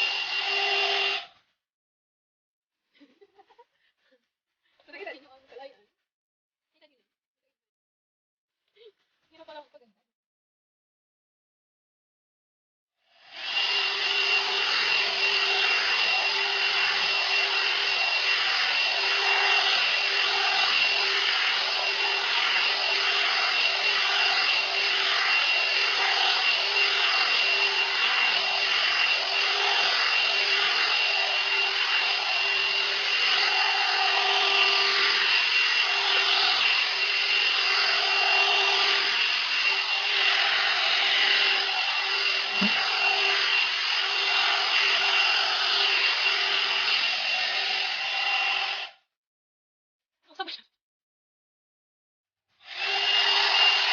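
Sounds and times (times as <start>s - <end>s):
hot air brush running: 0.0s - 1.3s, 13.1s - 49.0s, 52.6s - 53.9s.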